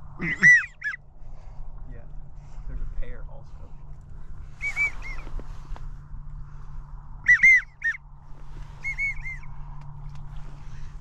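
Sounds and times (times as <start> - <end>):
wigeon whistles: 4.5 - 5.5, 7.2 - 8.0, 8.6 - 9.6.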